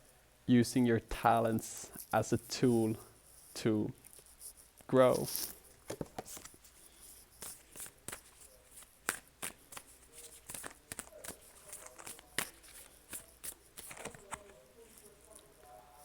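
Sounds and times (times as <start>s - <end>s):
cards being shuffled: 4.1s - 15.5s.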